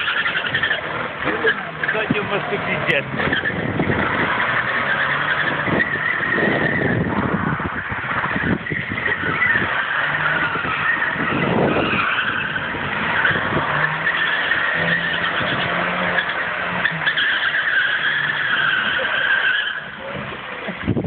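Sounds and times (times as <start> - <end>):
car engine running: 0.0 - 21.0
tyres squealing: 0.0 - 21.0.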